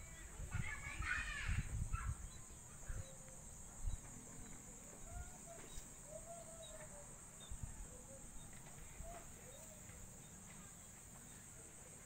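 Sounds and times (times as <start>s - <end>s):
distant bird calls: 0.0s - 12.0s.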